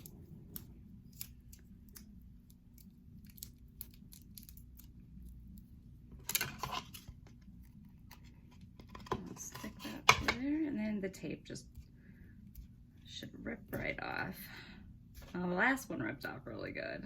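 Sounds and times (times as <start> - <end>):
tape rustling: 0.0 - 10.0.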